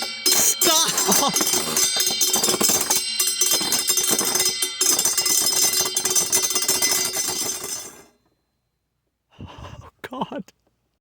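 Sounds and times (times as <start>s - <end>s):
spinning tops clattering: 0.0s - 8.0s
steady ringing tones: 0.0s - 8.3s
person speaking: 0.4s - 1.7s.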